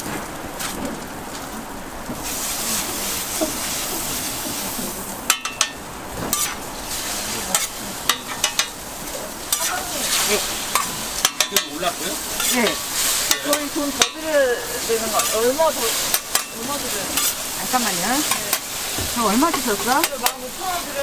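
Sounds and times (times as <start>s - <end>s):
food sizzling on griddle: 0.0s - 21.0s
metal spatula clicking and scraping: 9.5s - 14.2s, 15.1s - 17.5s, 18.2s - 18.7s, 19.5s - 20.5s.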